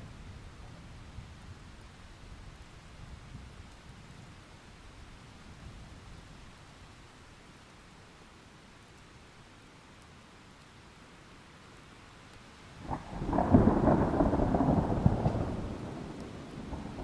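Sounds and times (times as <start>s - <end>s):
faint rain: 0.0s - 17.0s
thunder clap rumbling: 12.8s - 17.0s.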